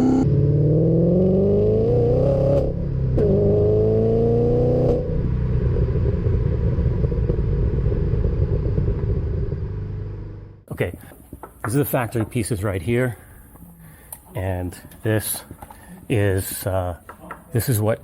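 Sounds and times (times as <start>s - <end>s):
car exhaust under hard acceleration: 0.0s - 10.7s.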